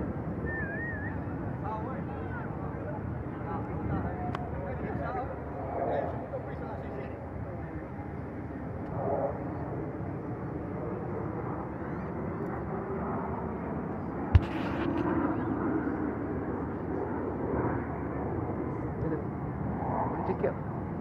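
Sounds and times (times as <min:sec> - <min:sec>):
sharp knock: 0:14.4 - 0:15.5
distant aircraft rumble: 0:14.4 - 0:18.3.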